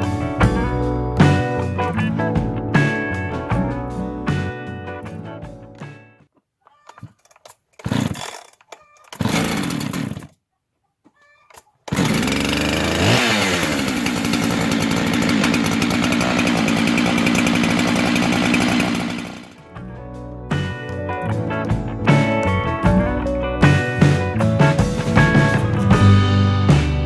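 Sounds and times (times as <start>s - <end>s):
chainsaw revving at full throttle: 7.9s - 8.4s, 9.2s - 10.3s, 11.9s - 19.6s.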